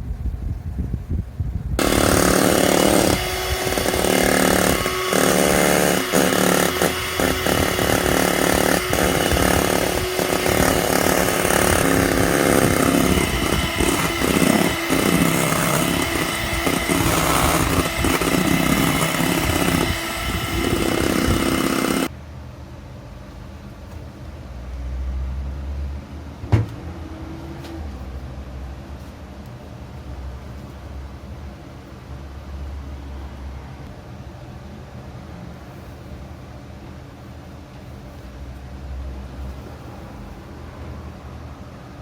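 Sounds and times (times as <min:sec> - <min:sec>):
motor humming and whirring: 0:01.8 - 0:22.1.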